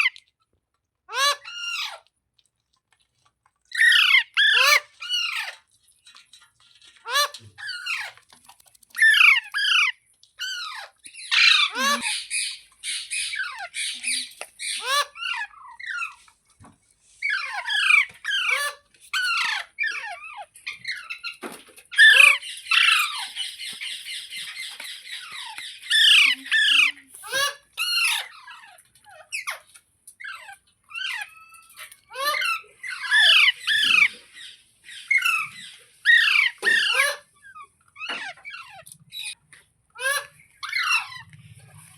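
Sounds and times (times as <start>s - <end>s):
parakeet squawking: 3.8s - 5.6s, 9.0s - 16.2s, 17.2s - 29.6s, 30.2s - 39.4s, 40.0s - 41.3s.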